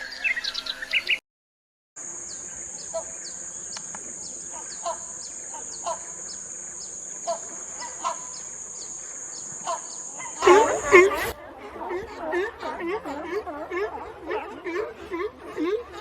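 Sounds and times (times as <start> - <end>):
bird chirps: 0.0 - 1.2, 2.2 - 11.4
high insect-like drone: 2.0 - 11.4.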